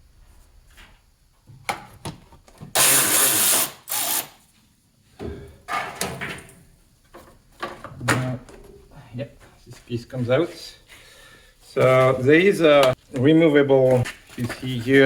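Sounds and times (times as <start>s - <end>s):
cordless power driver running: 2.8s - 4.4s.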